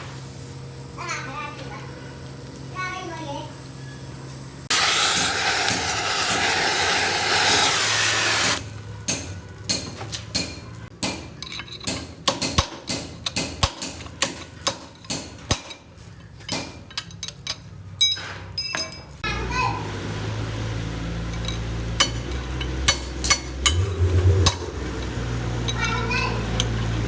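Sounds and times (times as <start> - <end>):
loud steady hiss: 4.5 - 8.7
hammer striking metal: 8.4 - 19.2, 21.3 - 27.0.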